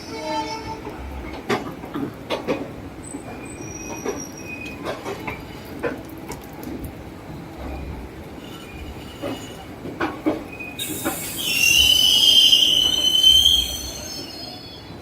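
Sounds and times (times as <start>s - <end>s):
train rumble: 0.0s - 15.0s
wheel squeals: 3.1s - 5.0s, 10.5s - 14.9s
train wheels knocking on rail joints: 9.2s - 11.3s.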